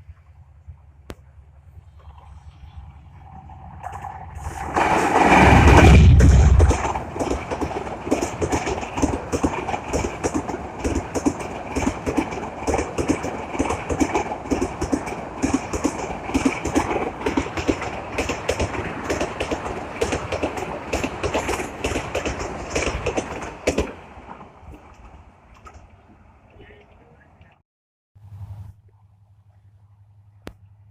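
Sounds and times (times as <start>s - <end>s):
train wheels clattering over rails: 3.3s - 25.9s.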